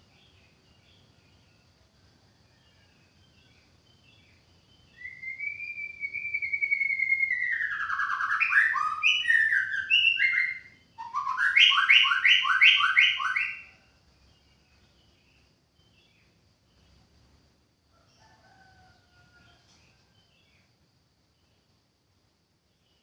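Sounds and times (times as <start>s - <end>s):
bird singing whistled notes: 3.3s - 13.8s.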